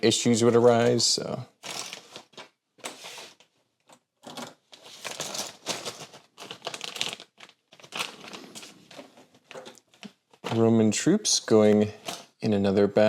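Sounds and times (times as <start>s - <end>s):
plastic bag rustling: 1.6s - 3.4s, 4.7s - 10.7s.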